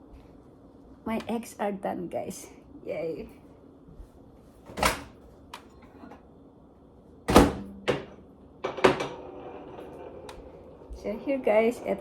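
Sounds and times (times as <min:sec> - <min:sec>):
microwave door opening: 0:04.7 - 0:05.2, 0:07.3 - 0:08.1.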